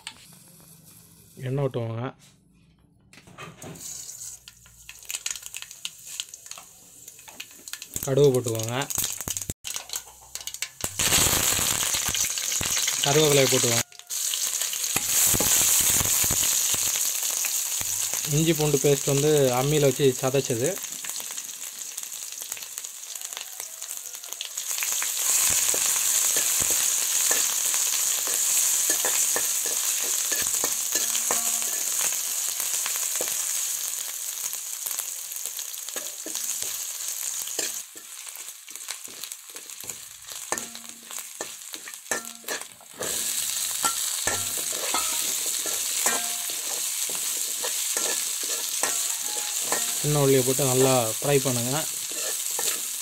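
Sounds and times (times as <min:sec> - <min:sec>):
spices sizzling in hot oil: 0:00.0 - 0:01.6, 0:03.6 - 0:53.0
metal ladle scraping pan: 0:03.5 - 0:04.5, 0:27.2 - 0:32.2, 0:40.5 - 0:50.5, 0:51.9 - 0:53.0.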